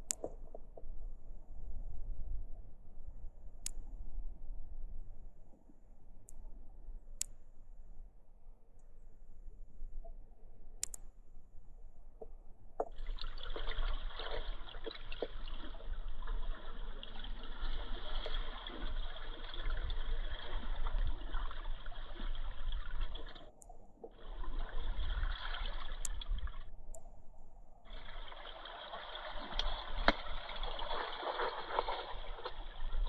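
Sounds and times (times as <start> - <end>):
river water gurgling: 12.8 - 26.7, 27.9 - 33.0.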